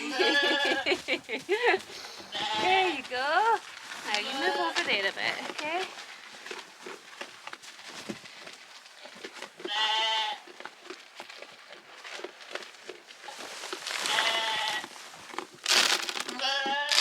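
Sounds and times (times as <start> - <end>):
sheep bleating: 0.0 - 1.0, 2.3 - 3.0, 4.1 - 5.0, 9.7 - 10.4, 14.0 - 14.8, 16.3 - 17.0.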